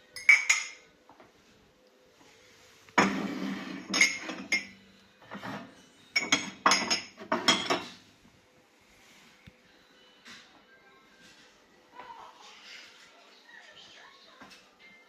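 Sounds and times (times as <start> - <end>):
dishes and glassware clinking: 0.0 - 0.9, 3.0 - 8.1.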